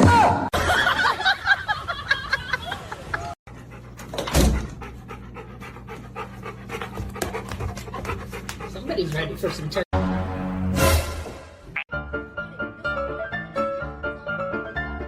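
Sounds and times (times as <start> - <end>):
dog panting: 3.5 - 9.9.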